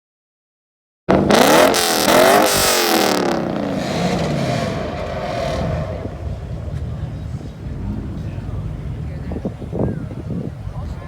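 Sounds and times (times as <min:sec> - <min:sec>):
car engine revving: 0:01.1 - 0:09.8.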